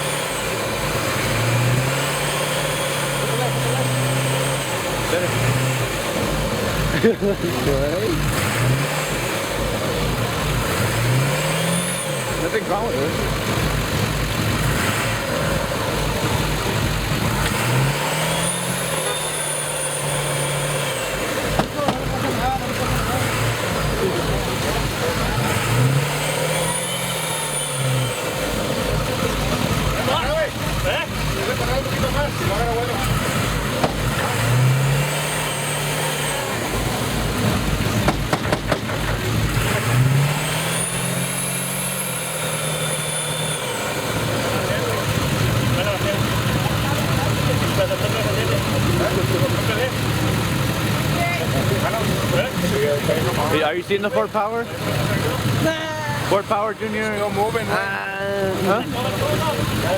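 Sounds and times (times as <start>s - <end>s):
diesel engine revving: 0.0s - 59.9s
turbo whistle: 18.2s - 21.4s, 26.5s - 28.4s, 40.8s - 44.1s
sharp knocks: 21.5s - 22.1s, 33.8s - 34.1s, 38.0s - 39.4s.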